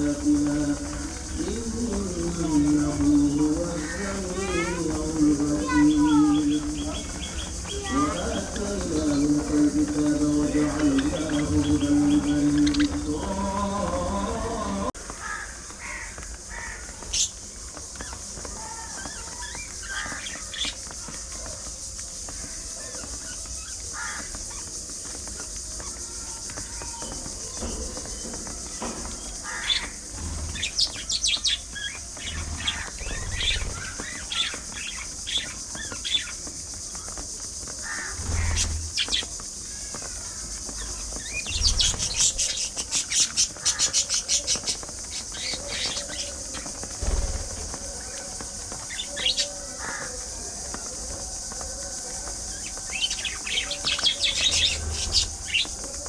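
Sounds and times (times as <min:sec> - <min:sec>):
budgerigars chattering: 0:29.4 - 0:36.4.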